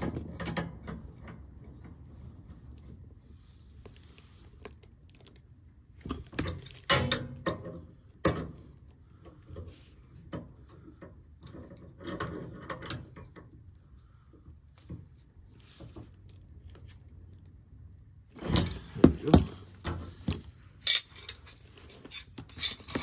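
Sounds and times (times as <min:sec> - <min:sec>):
hand tools and metal fittings rattling: 0:06.1 - 0:13.6, 0:18.4 - 0:23.0.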